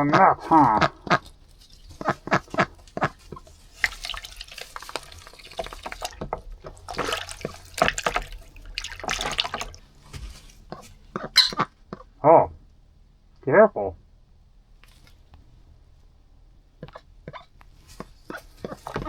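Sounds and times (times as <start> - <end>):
duck splashing in water: 0.0 - 12.0, 18.0 - 19.0.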